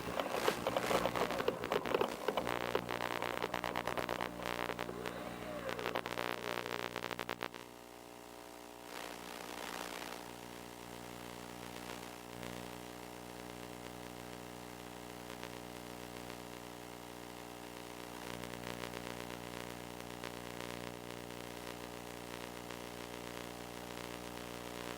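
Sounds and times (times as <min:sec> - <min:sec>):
electrical buzz: 0:00.0 - 0:07.6
static hiss and crackle: 0:00.0 - 0:24.9.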